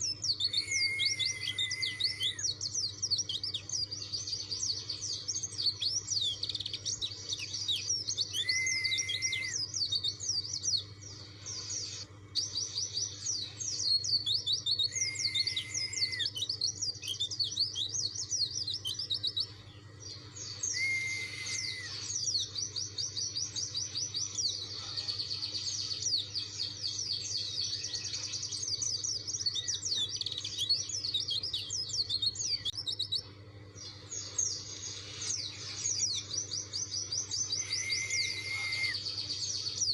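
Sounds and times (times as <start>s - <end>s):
bird twittering song: 0.0s - 39.9s
low held whistle: 0.6s - 2.5s, 8.4s - 9.6s, 14.9s - 16.3s, 20.7s - 22.1s, 37.6s - 39.0s.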